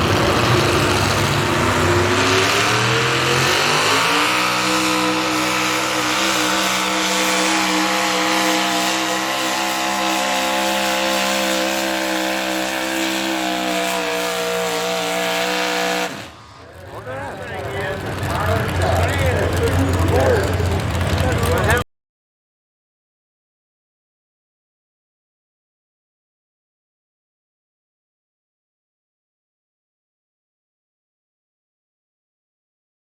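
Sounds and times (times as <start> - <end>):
engine revving at full throttle: 0.0 - 21.8.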